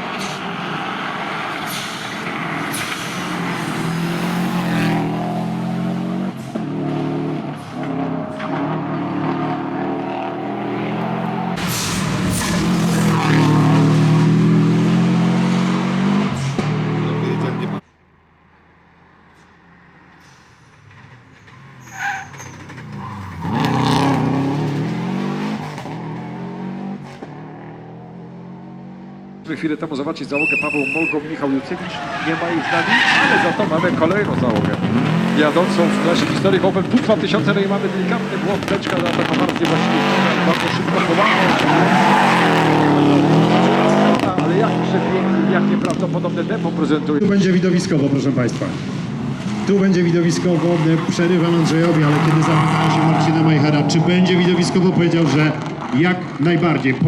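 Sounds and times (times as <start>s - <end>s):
rally car engine at high revs: 0.0s - 17.8s, 22.6s - 57.0s
short sharp burst: 11.6s - 13.5s.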